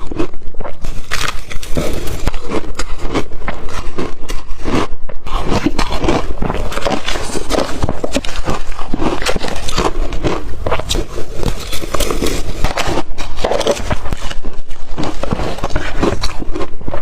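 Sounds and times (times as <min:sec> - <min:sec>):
chewing crushed ice: 0:00.0 - 0:17.0.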